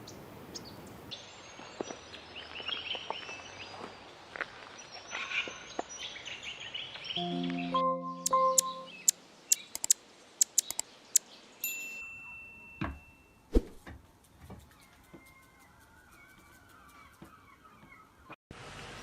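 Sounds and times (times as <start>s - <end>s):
faint wavering birdsong: 5.0s - 13.5s, 14.2s - 18.4s
songbird clicking notes: 7.2s - 11.3s.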